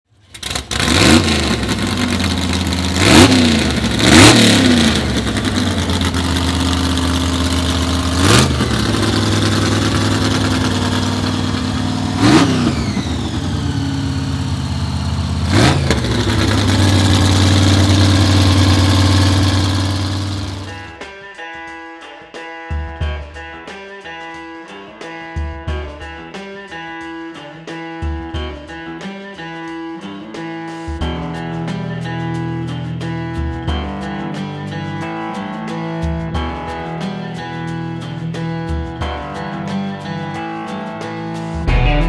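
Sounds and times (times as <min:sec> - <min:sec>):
engine idling roughly: 0:00.2 - 0:21.0
supercharger whine: 0:00.2 - 0:21.0
engine throttle blips: 0:00.3 - 0:21.0.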